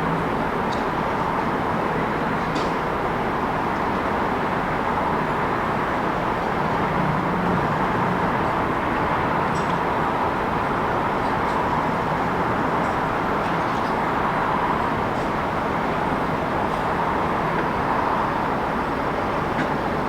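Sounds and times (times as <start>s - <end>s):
passing vehicles: 6.5s - 12.8s.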